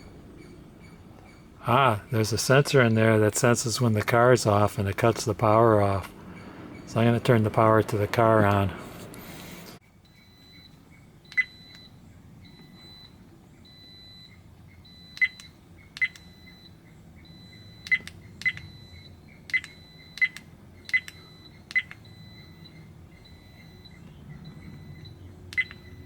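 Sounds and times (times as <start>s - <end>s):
faint repeating high beep: 10.0s - 26.0s.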